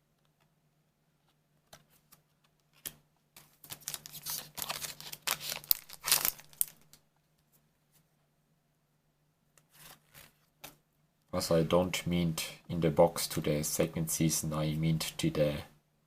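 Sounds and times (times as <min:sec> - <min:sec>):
foil pack tearing and crinkling: 0:03.7 - 0:06.8.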